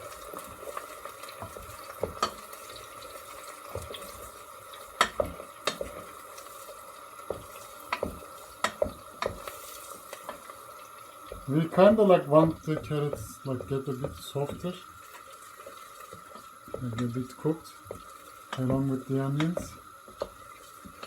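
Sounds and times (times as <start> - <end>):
vegetables frying: 0.0 - 21.0
spoon scraping a frying pan: 0.6 - 10.6, 12.4 - 21.0.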